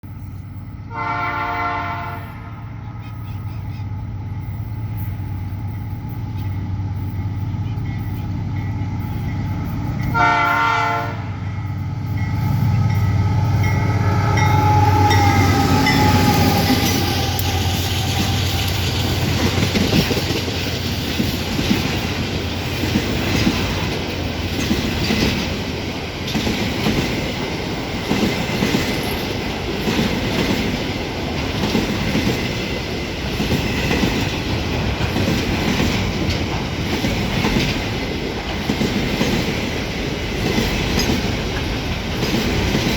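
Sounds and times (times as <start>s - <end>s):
diesel locomotive drone: 0.0s - 42.9s
train horn blast: 0.8s - 2.8s, 10.0s - 18.8s
clickety-clack of train wheels: 3.0s - 42.9s.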